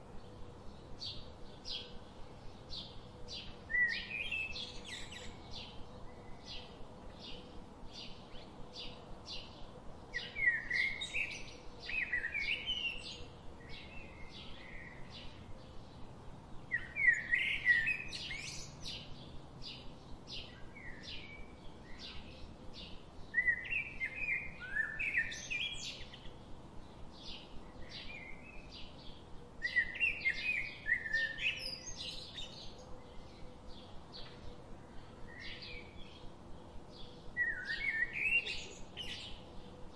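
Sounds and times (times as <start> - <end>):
bird chirping: 0.1 - 39.9
bird warbling song: 16.7 - 26.4, 27.2 - 36.3, 36.9 - 39.9.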